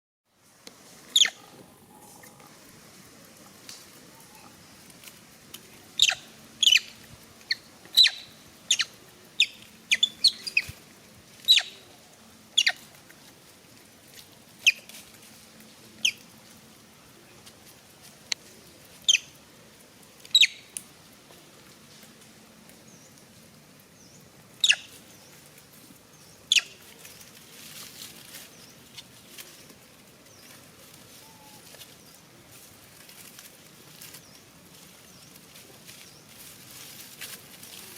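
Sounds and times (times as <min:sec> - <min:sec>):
high-pitched animal squeaks: 0:01.2 - 0:01.5, 0:06.0 - 0:06.9, 0:07.5 - 0:10.7, 0:11.5 - 0:11.8, 0:20.4 - 0:20.6.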